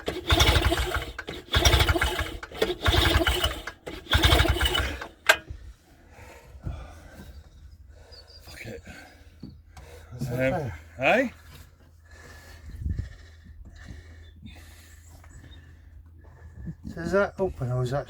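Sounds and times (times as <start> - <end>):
engine turning over: 0.0 - 5.7
outboard motor recoil cord pulls: 0.0 - 5.7.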